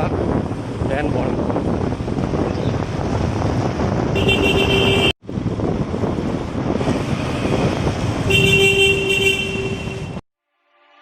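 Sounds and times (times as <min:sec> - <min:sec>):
motorcycle road and wind noise: 0:00.0 - 0:10.2
vehicle horn: 0:04.2 - 0:05.2, 0:08.3 - 0:11.0.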